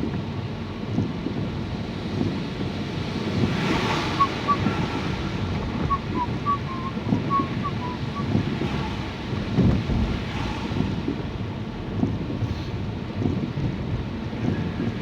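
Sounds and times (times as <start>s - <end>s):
tyres rumbling on wet road: 0.0s - 15.0s
rain on car: 1.0s - 14.7s.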